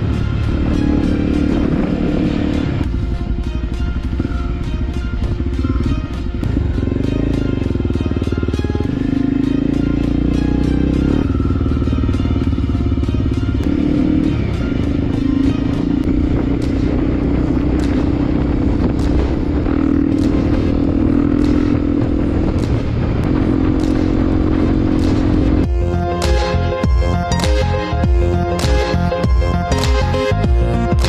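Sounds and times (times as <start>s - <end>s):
motorcycle engine running: 0.0s - 31.0s
electronic music with beat: 24.9s - 31.0s.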